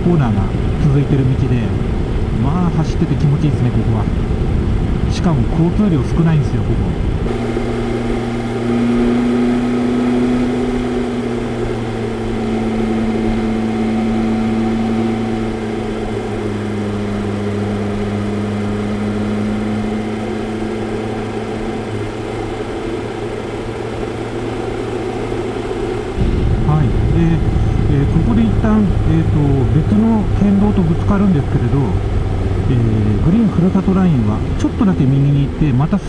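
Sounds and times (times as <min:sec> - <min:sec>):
motorcycle engine cruising: 0:00.0 - 0:36.0
wind and road noise: 0:00.0 - 0:36.0.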